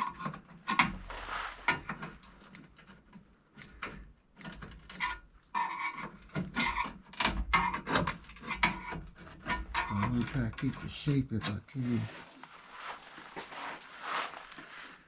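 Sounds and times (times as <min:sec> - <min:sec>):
metal scraping: 0:05.0 - 0:12.3.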